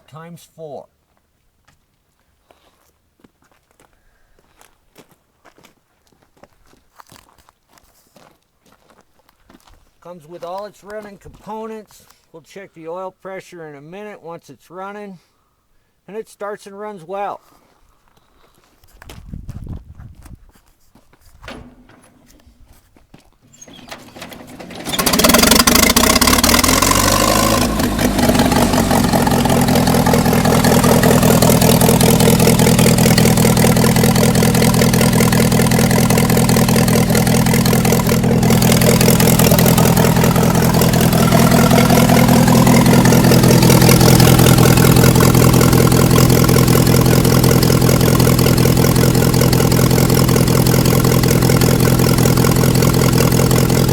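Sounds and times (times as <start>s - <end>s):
engine starting and idling: 21.4s - 22.6s, 23.4s - 53.9s.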